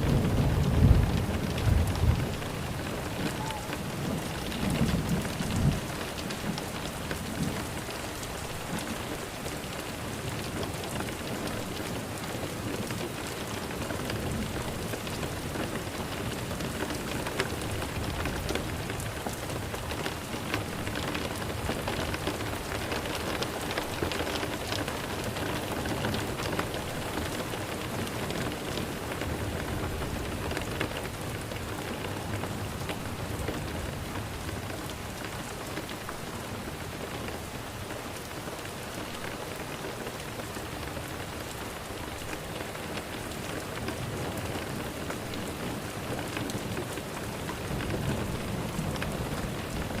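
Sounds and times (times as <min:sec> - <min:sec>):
thunder rumble: 0:00.0 - 0:06.6
steady rain falling: 0:00.0 - 0:50.0.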